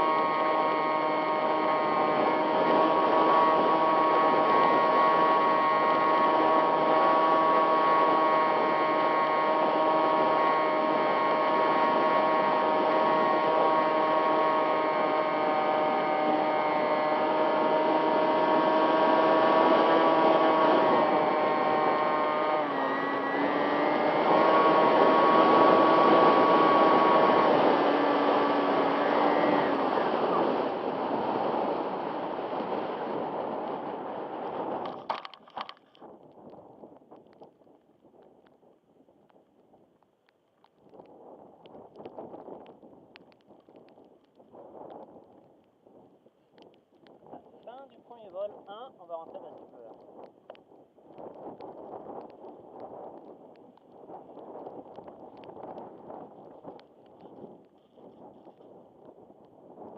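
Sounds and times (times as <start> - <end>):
model plane motor whining: 0.0 - 31.1.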